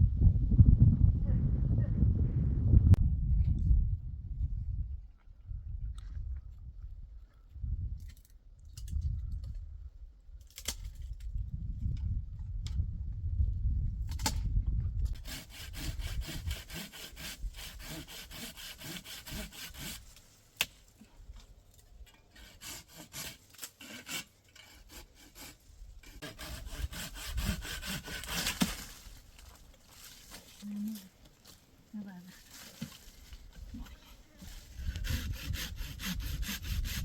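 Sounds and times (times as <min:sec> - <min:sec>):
hand saw cutting wood: 0:15.2 - 0:20.7, 0:22.3 - 0:29.2, 0:33.6 - 0:37.0.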